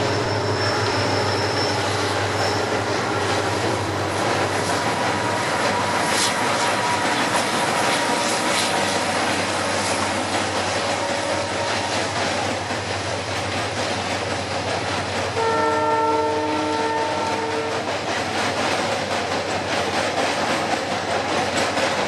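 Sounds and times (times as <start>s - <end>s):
diesel train rumbling: 0.0s - 22.0s
train horn: 5.7s - 8.8s, 10.6s - 12.1s, 15.4s - 17.9s.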